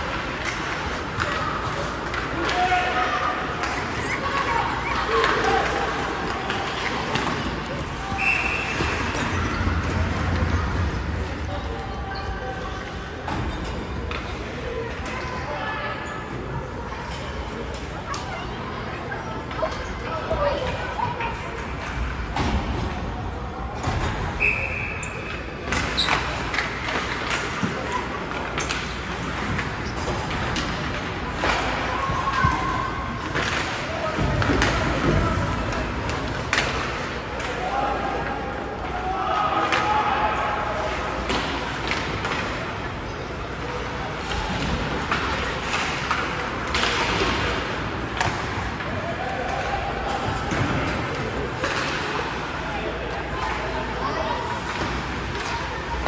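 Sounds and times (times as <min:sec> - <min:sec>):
hockey sticks and puck clacking: 0:00.0 - 0:11.2, 0:23.8 - 0:56.0.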